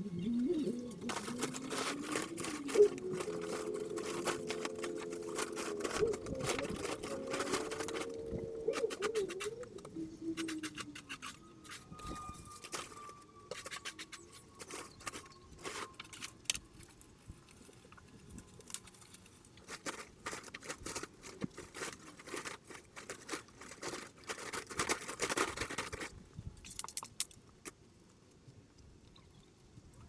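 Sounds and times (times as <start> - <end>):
rustling crackling and clicking: 0.0 - 28.2.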